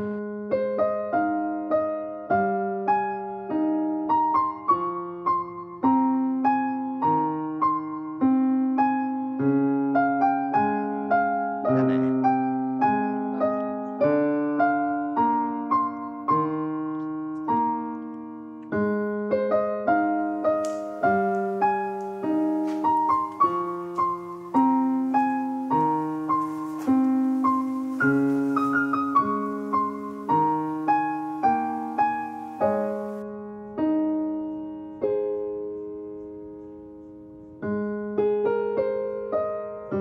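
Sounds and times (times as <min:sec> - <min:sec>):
gentle solo piano music: 0:00.0 - 0:40.0.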